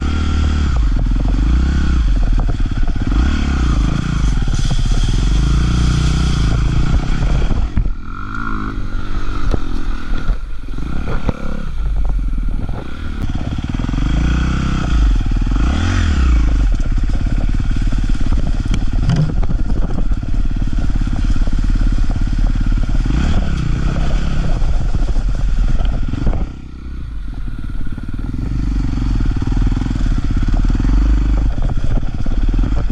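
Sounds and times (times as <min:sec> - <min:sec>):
dirt bike engine revving: 0:00.0 - 0:32.9
rattling and clatter: 0:16.6 - 0:26.6.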